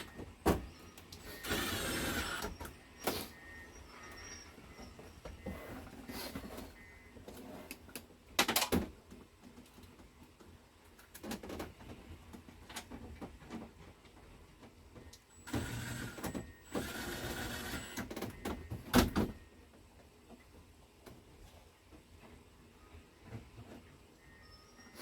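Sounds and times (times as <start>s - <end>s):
small electric motor whirring: 1.3s - 2.5s, 15.5s - 18.0s.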